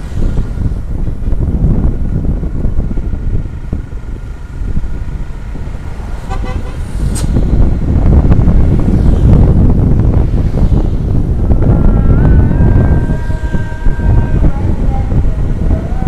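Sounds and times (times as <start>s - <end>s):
truck road rumble: 0.0s - 16.0s
wind buffeting: 0.0s - 16.0s
vehicle horn toots: 6.2s - 6.9s, 11.9s - 14.8s.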